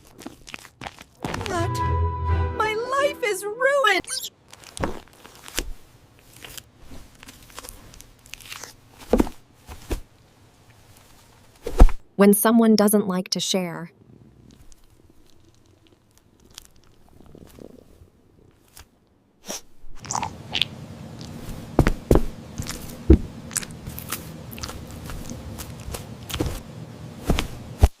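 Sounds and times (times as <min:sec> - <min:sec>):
crunchy chewing of food: 0:00.0 - 0:01.3, 0:04.5 - 0:09.0, 0:14.1 - 0:19.0, 0:20.0 - 0:26.7.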